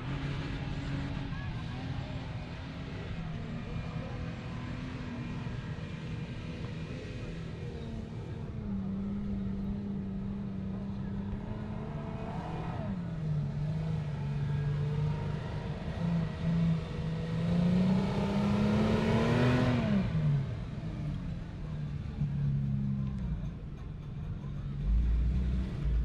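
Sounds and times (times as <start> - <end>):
off-road vehicle engine under load: 0.0 - 26.0.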